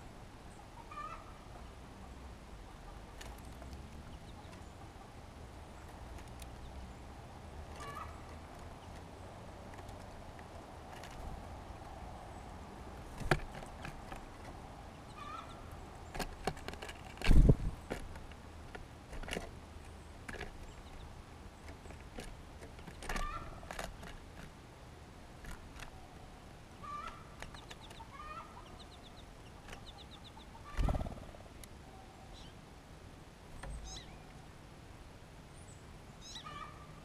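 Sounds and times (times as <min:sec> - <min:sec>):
songbirds calling: 0:00.0 - 0:37.0.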